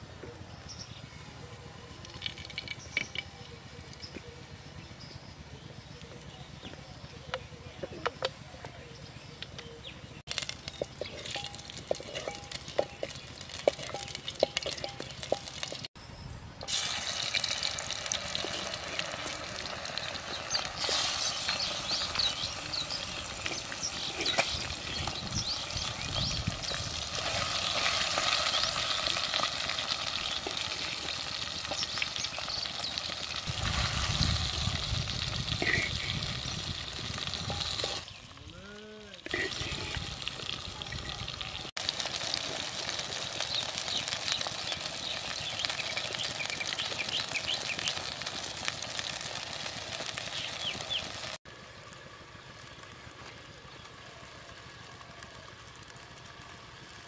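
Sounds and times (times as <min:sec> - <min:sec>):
chicken frying in a pot: 0:10.3 - 0:16.0, 0:16.6 - 0:38.4, 0:39.2 - 0:57.0
hot oil sizzling and crackling: 0:10.3 - 0:16.0, 0:16.6 - 0:38.4, 0:39.1 - 0:57.0
wooden spatula stirring: 0:10.7 - 0:15.9.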